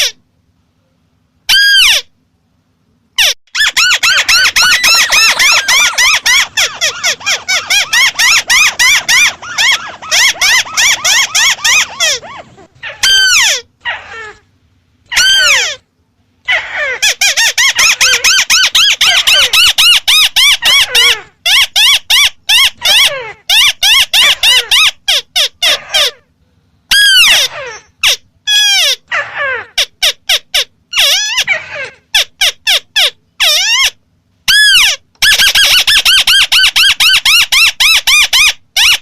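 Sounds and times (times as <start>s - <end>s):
crake calling: 3.2s - 14.4s.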